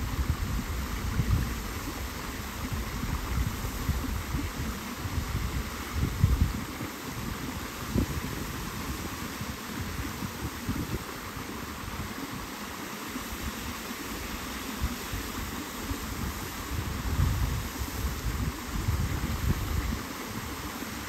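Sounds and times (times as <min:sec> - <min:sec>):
wind buffeting microphone: 0:00.0 - 0:12.4, 0:14.8 - 0:21.0
rushing water: 0:00.0 - 0:21.0.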